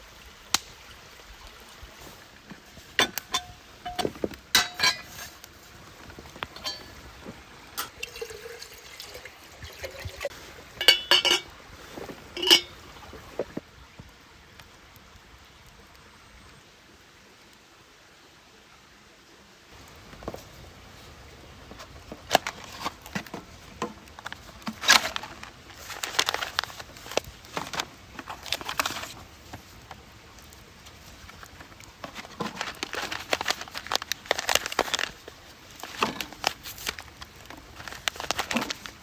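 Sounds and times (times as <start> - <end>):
glass clinks and knocks: 3.0 - 5.2, 6.6 - 7.0, 10.8 - 11.5, 12.4 - 12.8
liquid pouring: 6.4 - 13.4.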